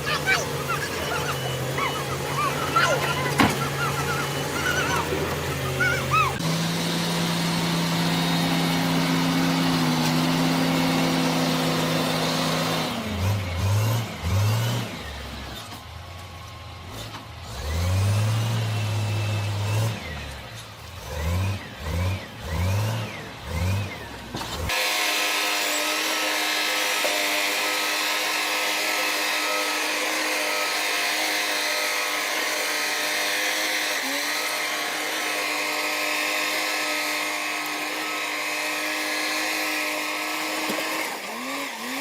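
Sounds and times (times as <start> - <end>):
heavy equipment engine revving: 0.0 - 15.6, 17.2 - 25.0
steady engine hum: 0.0 - 24.8.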